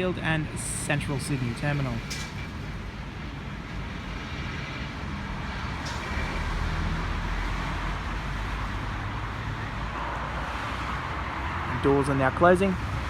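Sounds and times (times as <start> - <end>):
train equipment rumble and hiss: 0.0 - 6.6.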